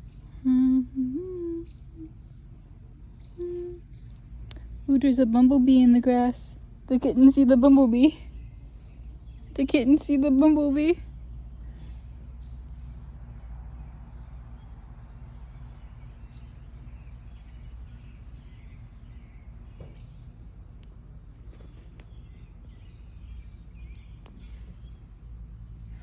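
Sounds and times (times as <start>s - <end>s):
faint bird chirps: 0.0s - 4.9s
steady low rumble: 0.0s - 26.0s.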